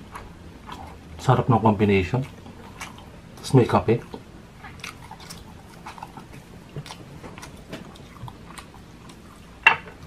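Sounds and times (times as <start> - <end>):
wet chewing and mouth smacks: 2.1 - 9.6.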